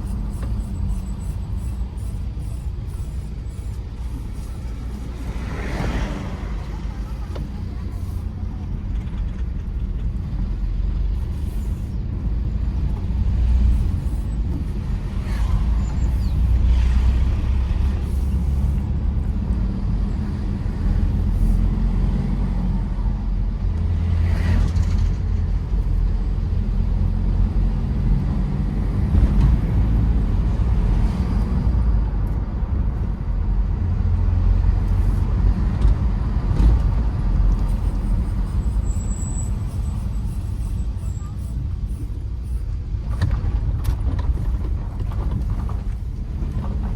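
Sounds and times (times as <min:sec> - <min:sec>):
suv engine and tyre rumble: 0:00.0 - 0:46.9.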